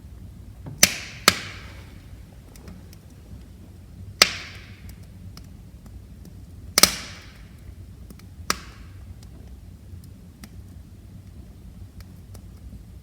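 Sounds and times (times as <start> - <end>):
wood fire crackling: 0.0 - 13.0
loud sharp pops of fire: 0.6 - 9.4.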